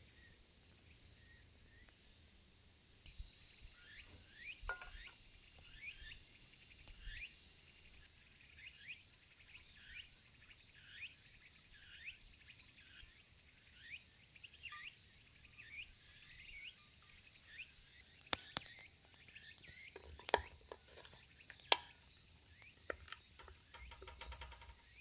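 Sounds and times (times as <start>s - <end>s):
high insect hiss: 0.1s - 25.0s
short insect chirps: 3.1s - 8.1s, 11.8s - 25.0s
sharp clicks: 18.2s - 18.9s.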